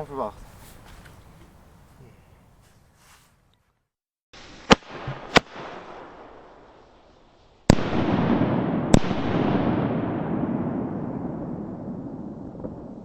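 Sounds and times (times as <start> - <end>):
firecracker bangs: 4.4 - 6.7, 7.6 - 13.0.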